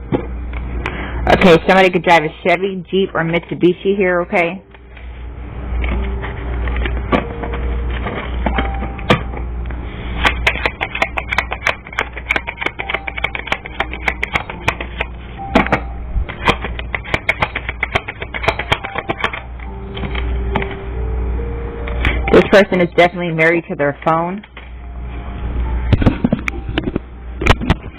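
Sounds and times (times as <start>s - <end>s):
steady low hum: 0.0s - 27.9s
cards being shuffled: 10.2s - 15.1s, 15.7s - 20.3s.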